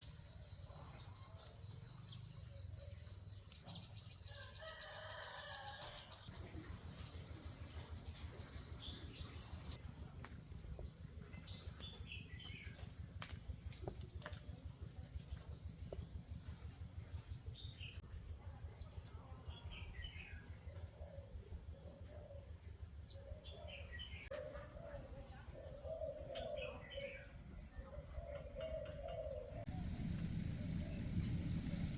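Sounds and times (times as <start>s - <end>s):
birds calling: 23.2s - 29.7s
low rumble: 29.6s - 31.9s.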